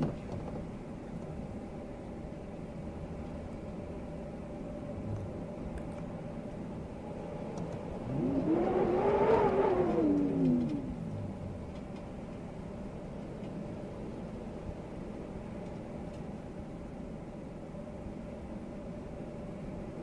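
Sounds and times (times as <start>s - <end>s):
car passing by: 7.1s - 11.8s.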